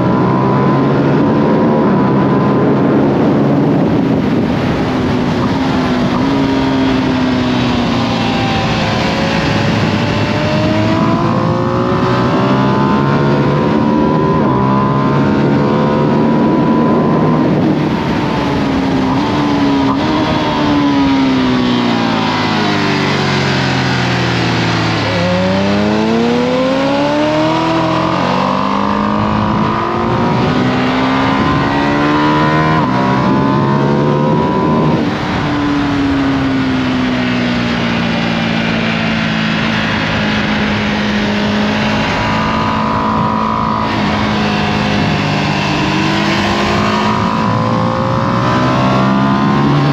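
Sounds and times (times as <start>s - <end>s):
motorcycle engine accelerating: 0.0s - 49.9s
wind rush: 0.0s - 49.9s.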